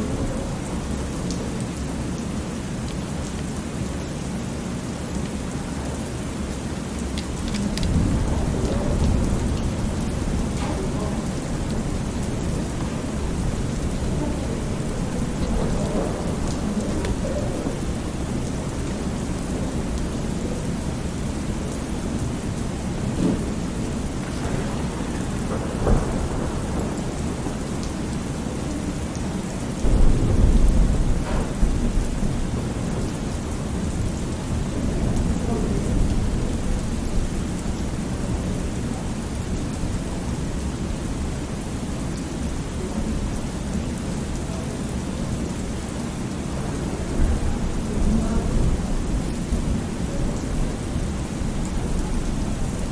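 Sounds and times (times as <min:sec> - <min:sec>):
steady rain: 0:00.0 - 0:52.9
thunder rumbling: 0:07.3 - 0:41.5, 0:46.6 - 0:52.9.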